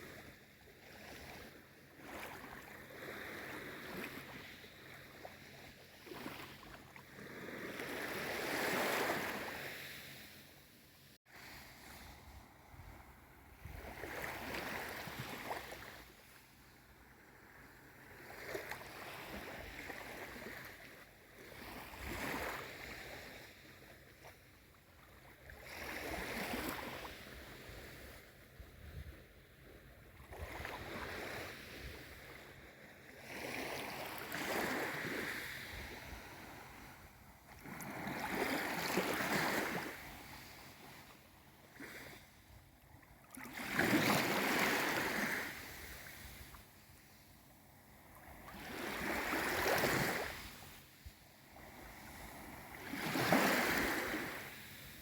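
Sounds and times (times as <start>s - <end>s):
gentle sea waves: 0.0s - 55.0s.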